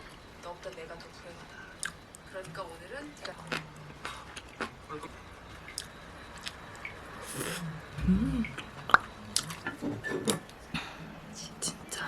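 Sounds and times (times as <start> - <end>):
short low hum: 7.2 - 8.9.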